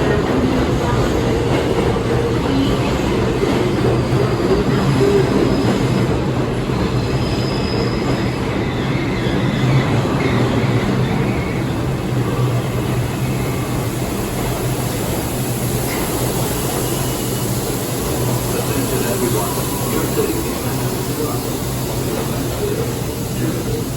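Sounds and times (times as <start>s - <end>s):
train wheels rumbling on rail: 0.0s - 23.9s
high wheel squeals: 6.9s - 23.8s.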